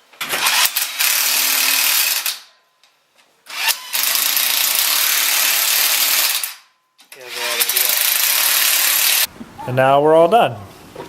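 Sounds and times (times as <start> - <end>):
loud power tool running: 7.3 - 9.3.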